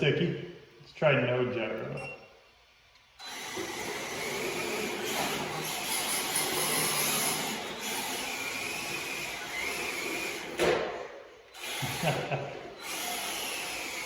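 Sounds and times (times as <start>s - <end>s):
electric motor whining: 3.2s - 10.6s, 11.5s - 14.0s
tire and floor noise: 3.2s - 14.0s.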